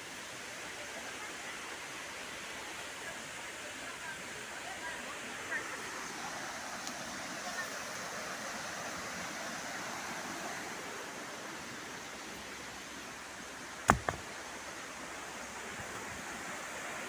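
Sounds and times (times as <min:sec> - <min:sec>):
waterfall and river rushing: 0:00.0 - 0:17.0
sharp knocks: 0:13.9 - 0:14.2.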